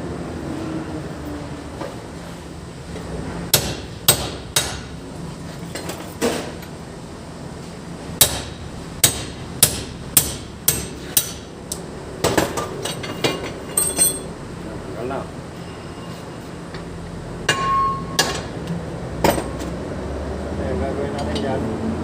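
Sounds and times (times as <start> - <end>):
hammer striking metal: 3.5 - 5.0, 8.2 - 11.5, 17.5 - 18.5.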